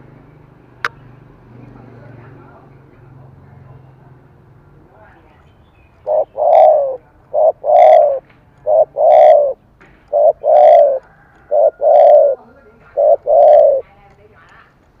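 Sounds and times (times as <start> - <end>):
dove cooing: 6.0 - 13.9.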